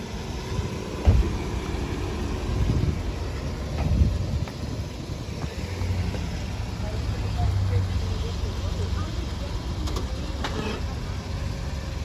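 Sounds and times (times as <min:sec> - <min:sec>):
vehicles idling: 0:00.0 - 0:12.0
sharp thump: 0:01.0 - 0:01.4.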